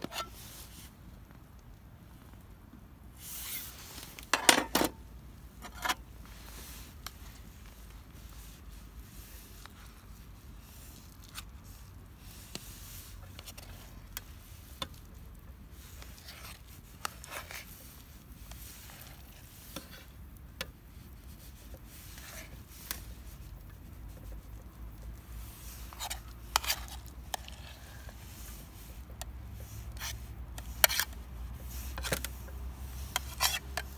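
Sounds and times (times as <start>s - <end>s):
cooking utensils rubbing and scraping: 0.0s - 0.9s, 3.2s - 5.0s, 5.6s - 6.9s, 8.2s - 33.9s.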